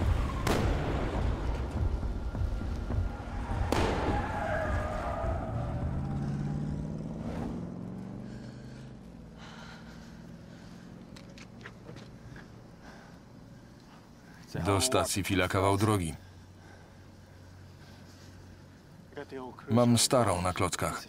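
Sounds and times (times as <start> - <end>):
car engine pulling away: 0.2 - 12.6.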